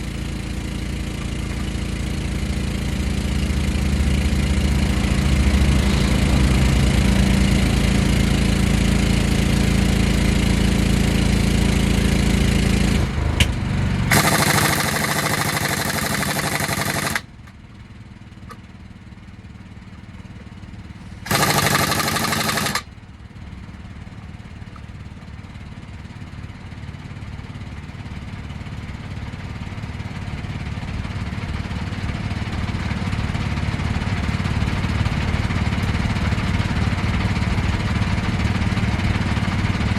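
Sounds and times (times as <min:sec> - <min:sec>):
truck engine idling: 0:00.2 - 0:28.4.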